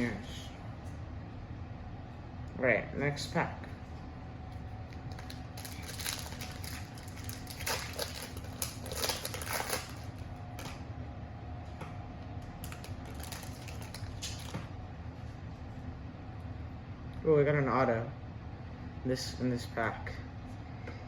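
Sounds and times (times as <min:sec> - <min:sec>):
foil wrapper crinkling: 0:04.9 - 0:10.8, 0:12.6 - 0:14.7.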